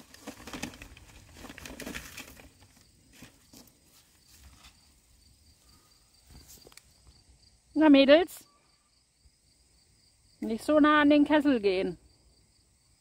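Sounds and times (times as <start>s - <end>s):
campfire crackling: 0.0s - 3.6s.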